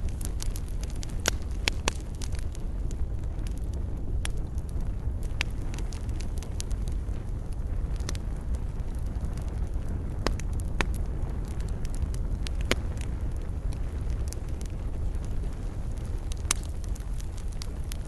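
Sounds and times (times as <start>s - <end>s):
campfire rumble: 0.0s - 18.0s
fire crackles and pops: 0.0s - 18.0s.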